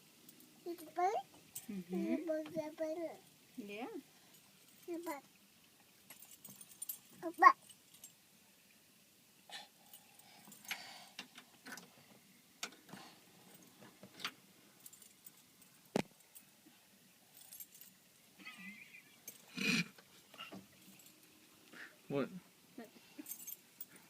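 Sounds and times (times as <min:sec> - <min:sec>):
keys jangling and clicking: 0:06.1 - 0:08.1, 0:23.2 - 0:24.0.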